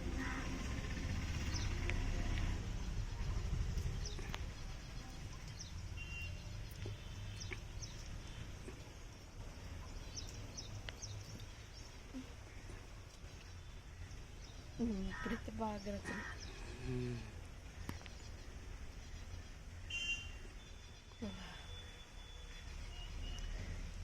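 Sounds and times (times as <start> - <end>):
low rumble: 0.0 - 5.5.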